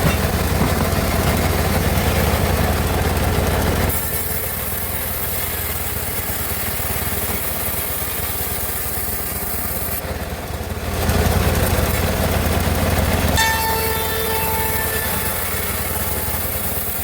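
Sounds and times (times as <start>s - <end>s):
bandsaw sawmill droning: 0.0s - 17.0s
high steady whine: 13.3s - 17.0s.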